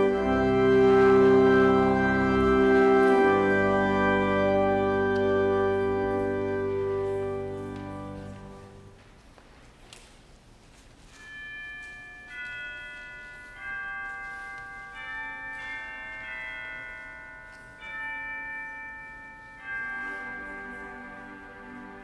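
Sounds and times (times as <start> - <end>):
tubular bell chimes: 0.0 - 8.8, 11.2 - 22.0.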